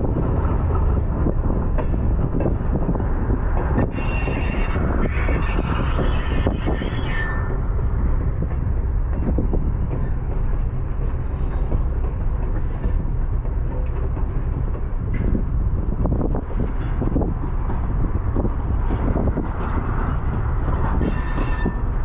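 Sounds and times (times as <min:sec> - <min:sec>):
electric locomotive rumbling: 0:00.0 - 0:22.0.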